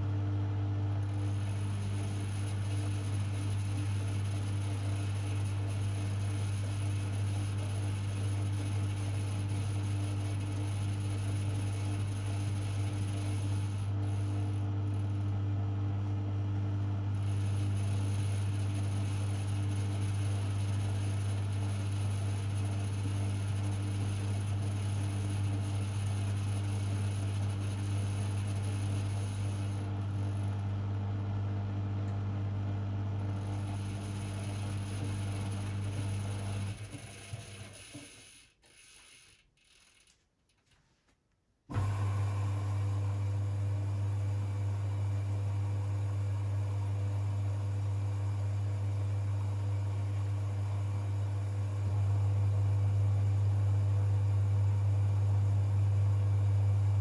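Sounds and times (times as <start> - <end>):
washing machine humming: 0.0 - 38.1, 41.7 - 57.0.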